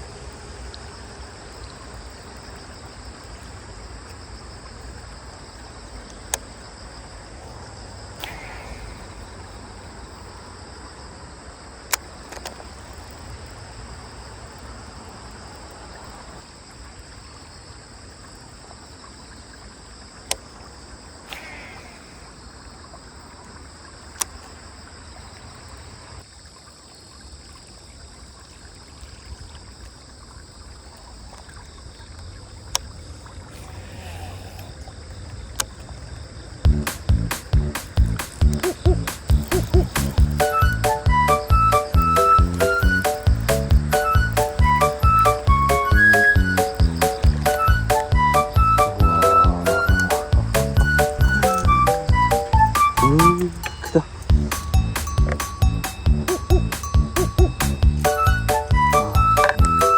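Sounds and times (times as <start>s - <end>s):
steady hiss: 8.1s - 10.3s, 21.2s - 22.8s, 33.4s - 34.9s, 36.7s - 57.7s
sharp clicks: 8.2s - 9.0s, 21.3s - 21.9s, 36.7s - 58.2s
short bird calls: 8.2s - 9.4s, 21.2s - 22.4s, 33.5s - 34.9s
high-pitched trill: 38.6s - 59.9s.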